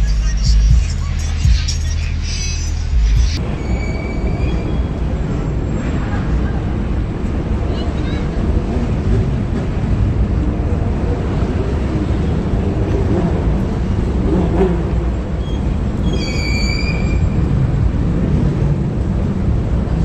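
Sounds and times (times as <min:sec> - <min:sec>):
high-pitched squeal: 0:00.0 - 0:05.9, 0:15.3 - 0:17.6
car engines rumbling: 0:00.0 - 0:20.0.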